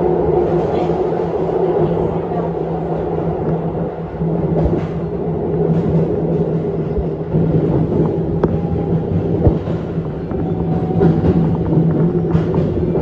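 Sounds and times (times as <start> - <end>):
electric train hum and rumble: 0.0 - 13.0
wheels knocking on track: 5.7 - 13.0.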